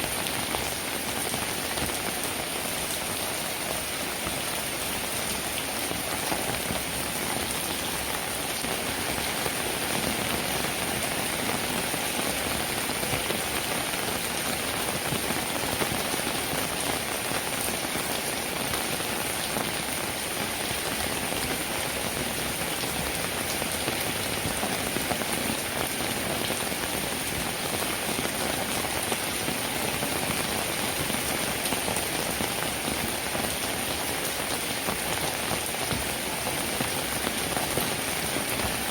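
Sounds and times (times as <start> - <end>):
steady rain patter: 0.0 - 38.9.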